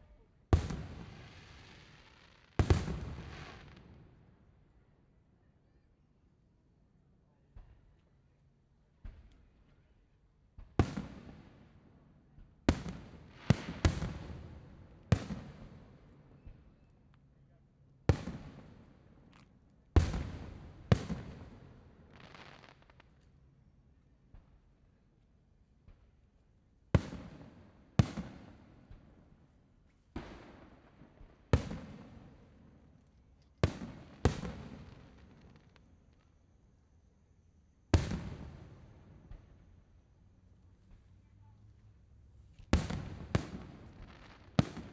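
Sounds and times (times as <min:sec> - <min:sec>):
fireworks booming: 0:33.7 - 0:35.9, 0:38.0 - 0:39.6, 0:42.7 - 0:44.9.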